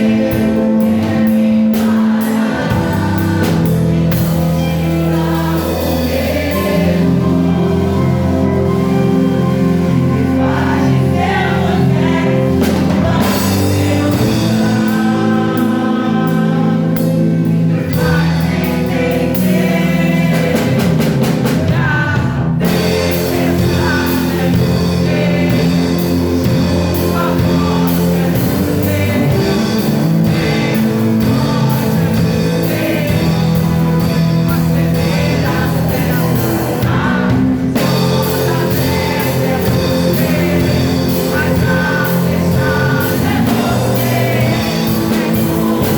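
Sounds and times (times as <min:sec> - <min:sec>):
band with drums: 0:00.0 - 0:45.9
voices singing praise song: 0:00.0 - 0:45.9.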